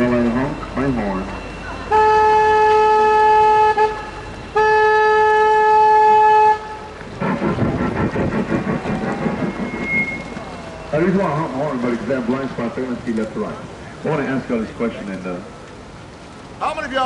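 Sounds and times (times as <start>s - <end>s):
boat horn blasts: 1.3s - 7.4s
noisy crackle: 6.8s - 17.0s.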